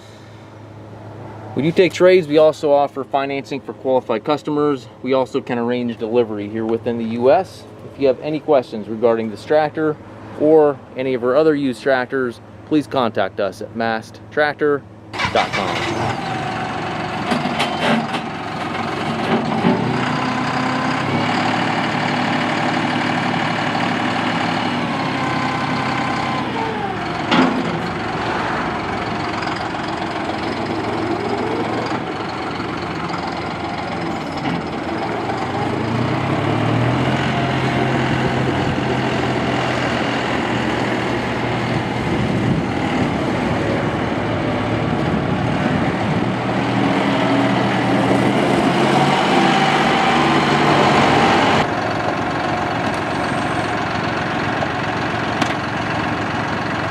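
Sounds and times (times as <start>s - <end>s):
tractor diesel engine running: 14.9s - 56.9s.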